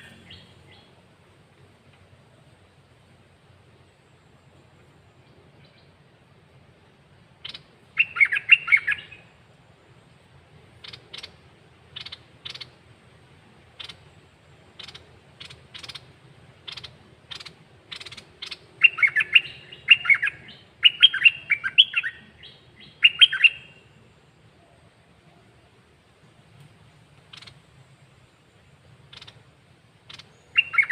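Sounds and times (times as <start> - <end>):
songbird warbling: 0.0 - 1.0, 7.4 - 9.9, 10.7 - 12.9, 13.6 - 24.7, 27.2 - 30.9
songbird chirps: 0.0 - 30.9.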